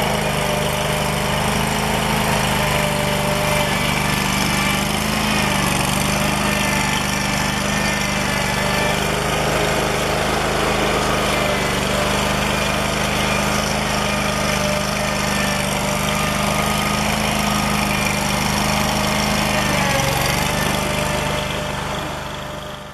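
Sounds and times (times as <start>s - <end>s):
compact loader engine running: 0.0s - 22.9s.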